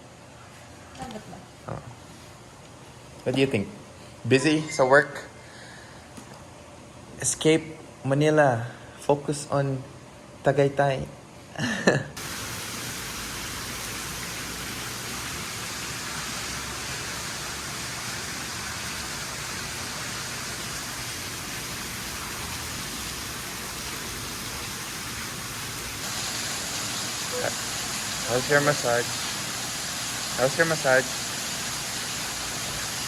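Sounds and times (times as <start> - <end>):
steady rushing hiss: 12.2 - 33.0.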